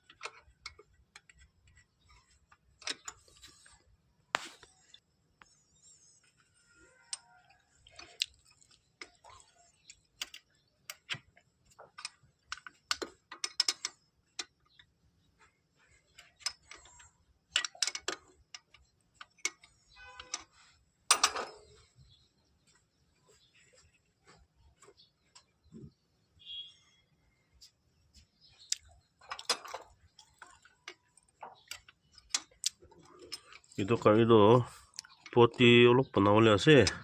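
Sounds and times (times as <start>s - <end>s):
tools and metal parts clinking: 0.0s - 3.9s, 7.0s - 22.1s, 28.8s - 37.0s
metal clank: 21.1s - 21.7s.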